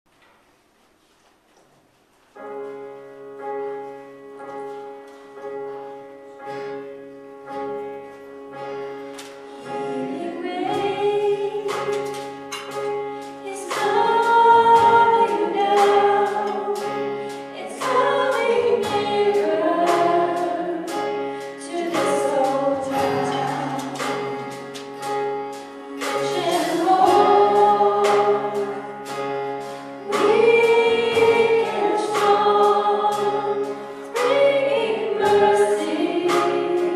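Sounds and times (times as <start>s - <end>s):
keyboard chords: 2.3s - 36.9s
percussion hits: 9.1s - 36.9s
choir singing: 9.6s - 12.2s, 13.4s - 24.6s, 25.9s - 36.9s.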